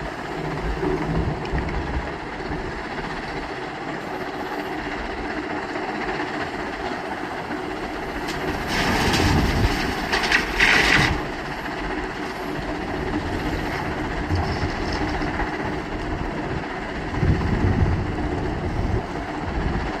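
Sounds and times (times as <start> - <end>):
diesel construction machinery running: 0.0 - 20.0
harsh rattling and grinding: 5.9 - 17.9.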